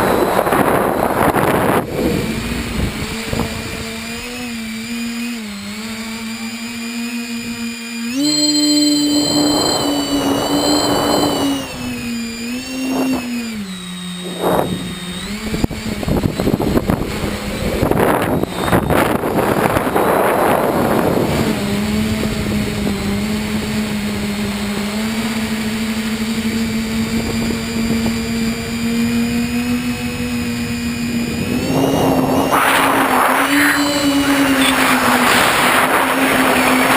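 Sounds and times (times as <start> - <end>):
drone propellers buzzing: 0.0 - 36.9
rushing noise: 31.2 - 36.9.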